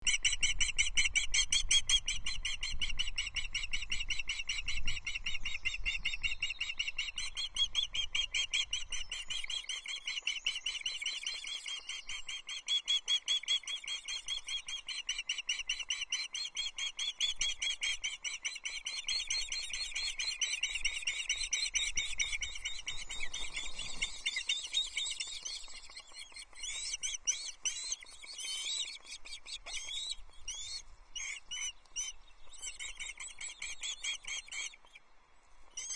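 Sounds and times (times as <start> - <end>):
ospreys chirping: 18.5 - 35.0.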